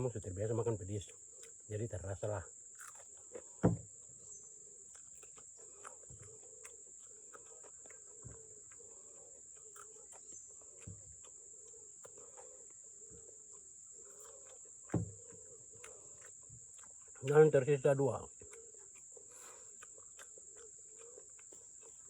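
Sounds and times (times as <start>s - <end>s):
soft knocks: 14.9s - 15.2s.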